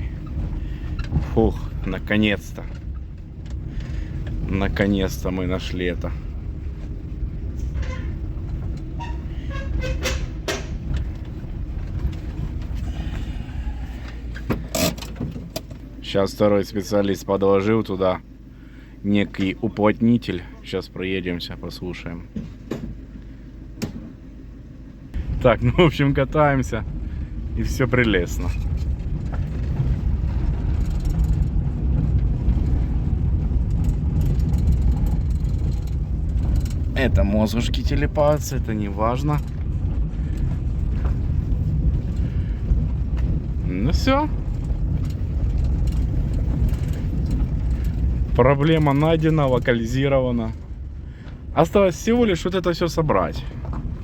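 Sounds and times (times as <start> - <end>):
car interior road rumble: 0.0 - 54.0
bonnet hinge knocks and squeaks: 8.9 - 10.8.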